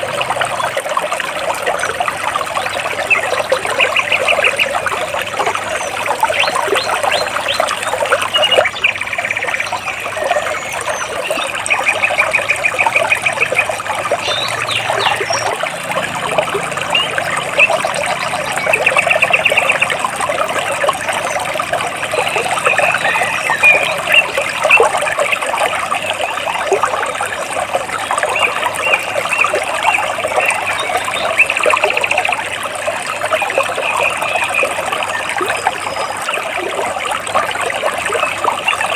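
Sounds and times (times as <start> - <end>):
stream splashing over rocks: 0.0 - 38.9
birds chirping in trills: 2.5 - 26.7.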